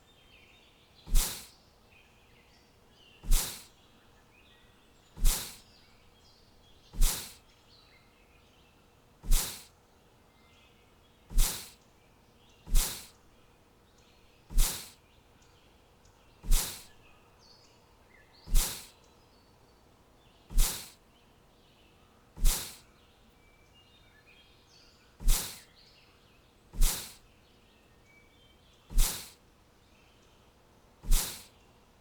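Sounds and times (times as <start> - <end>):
faint bird chirps: 0.0 - 31.8
short loud noise bursts: 1.1 - 1.5, 3.3 - 3.7, 9.2 - 9.7, 11.3 - 11.7, 14.5 - 14.9, 16.4 - 16.9, 18.5 - 18.9, 20.5 - 21.0, 22.4 - 22.8, 25.2 - 25.6, 28.9 - 29.4, 31.0 - 31.5.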